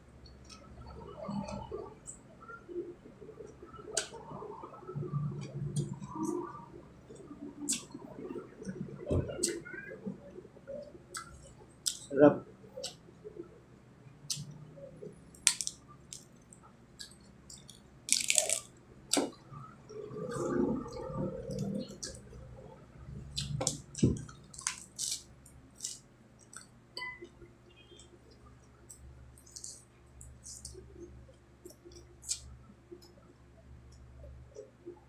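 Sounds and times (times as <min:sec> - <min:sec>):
food crunching: 0:15.3 - 0:22.3, 0:23.3 - 0:26.7, 0:28.8 - 0:33.2
wet chewing and squishing: 0:15.4 - 0:19.3.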